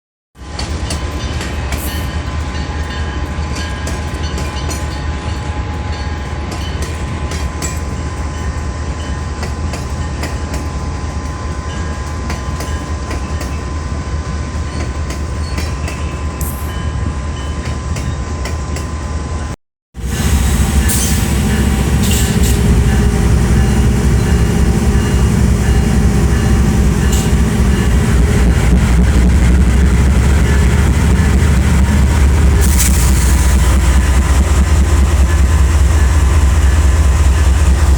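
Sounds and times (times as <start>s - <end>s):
heavy diesel locomotive engine: 0.4s - 37.9s
train wheels clicking over rail joints: 6.2s - 16.8s, 20.8s - 37.9s.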